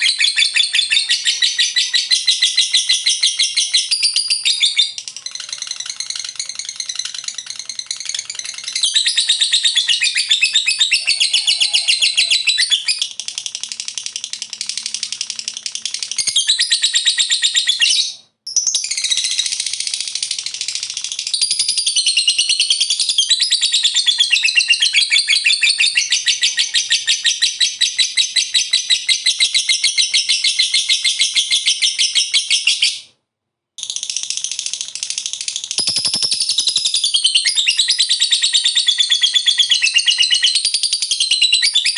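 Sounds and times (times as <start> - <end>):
bird rattling chatter: 5.2 - 8.8, 33.8 - 36.8.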